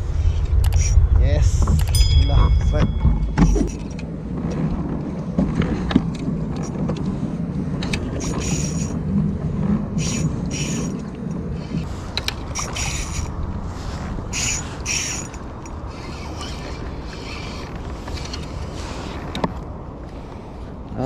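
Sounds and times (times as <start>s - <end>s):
fishing reel ratcheting: 8.2s - 9.0s, 10.0s - 11.0s, 12.2s - 13.3s, 14.3s - 18.4s.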